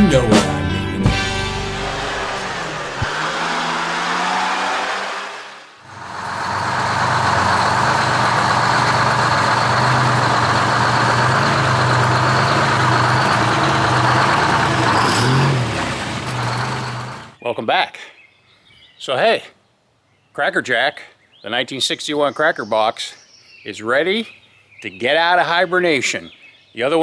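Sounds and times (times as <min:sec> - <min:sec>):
music: 0:00.0 - 0:02.5
diesel truck engine drone: 0:00.0 - 0:17.4.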